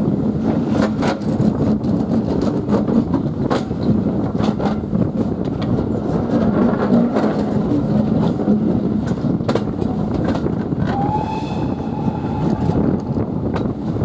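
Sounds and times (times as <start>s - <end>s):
locomotive engine hum: 0.0s - 14.0s
wheels clicking over rail joints: 0.3s - 11.1s
locomotive horn long note: 10.9s - 13.6s.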